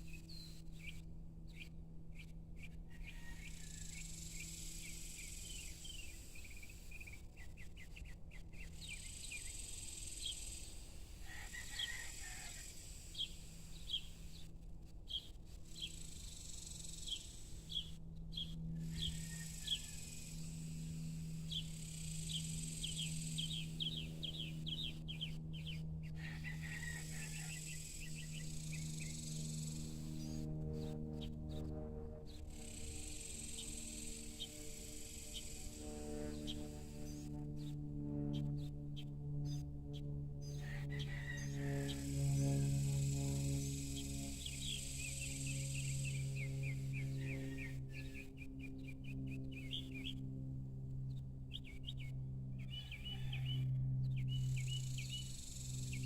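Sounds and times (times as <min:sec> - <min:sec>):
steady low hum: 0:00.0 - 0:56.0
bird chirping: 0:15.1 - 0:20.4, 0:21.5 - 0:25.8, 0:43.9 - 0:50.2, 0:51.5 - 0:56.0
high insect buzz: 0:18.8 - 0:24.8, 0:27.3 - 0:30.2, 0:32.3 - 0:37.3, 0:41.8 - 0:47.1.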